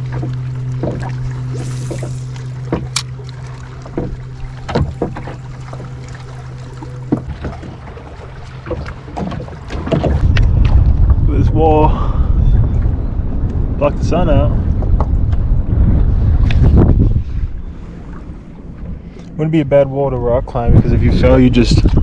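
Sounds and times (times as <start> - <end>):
paddle splashing and knocking hull: 0.0 - 11.3
steady low hum: 0.0 - 22.0.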